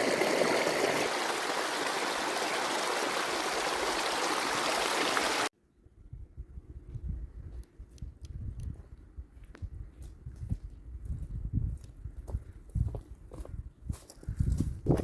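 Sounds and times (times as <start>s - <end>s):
stream water rushing: 0.0s - 5.5s.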